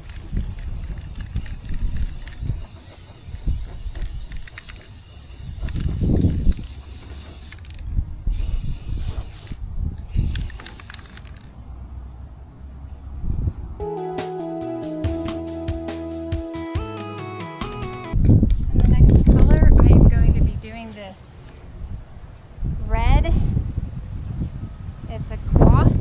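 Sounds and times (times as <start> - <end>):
wind on microphone: 0.0 - 11.2, 13.0 - 13.8, 18.1 - 26.0
spray paint can hissing: 0.0 - 11.5, 20.2 - 21.6.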